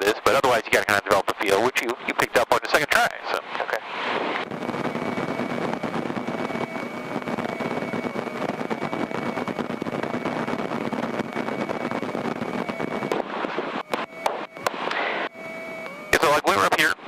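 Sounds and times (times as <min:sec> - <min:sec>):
airplane engine droning: 0:00.0 - 0:17.0
thin steady whine: 0:00.0 - 0:17.0.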